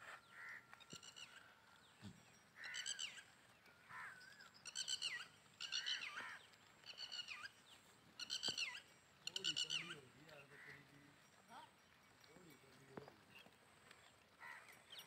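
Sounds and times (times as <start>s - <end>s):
birds chirping: 0.1s - 15.0s.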